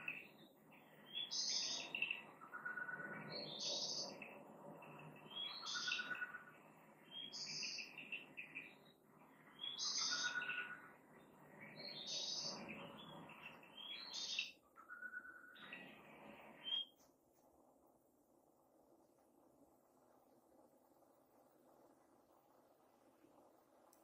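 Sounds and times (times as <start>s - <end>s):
songbird singing high phrases: 0.0s - 10.9s, 11.6s - 15.9s, 16.6s - 16.9s
soft background hiss: 0.0s - 24.0s.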